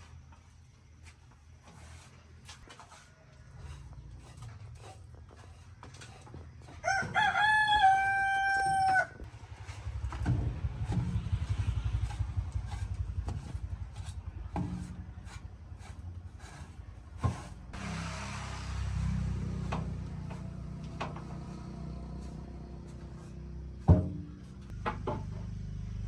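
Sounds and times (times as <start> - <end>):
rooster crowing: 6.8 - 9.3
low rapid pulsing: 9.4 - 20.6.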